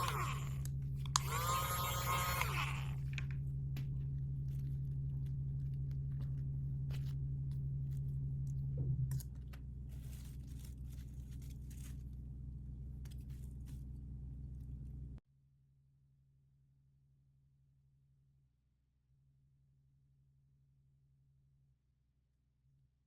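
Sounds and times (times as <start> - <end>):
low electrical hum: 0.0 - 15.2
plastic packaging crinkling: 9.1 - 12.2.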